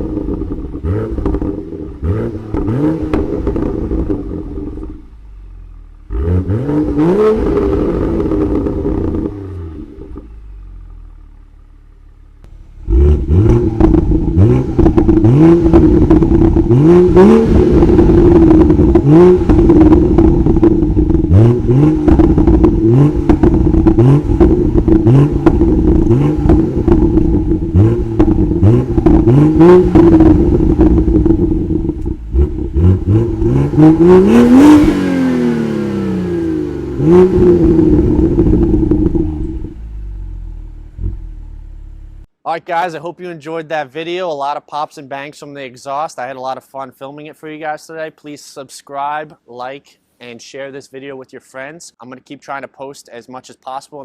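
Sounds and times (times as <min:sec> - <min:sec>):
car engine revving: 0:00.0 - 0:11.7, 0:12.3 - 0:42.3
exhaust pops and crackles: 0:00.1 - 0:01.7, 0:02.5 - 0:05.0, 0:12.4 - 0:35.7, 0:37.0 - 0:39.9.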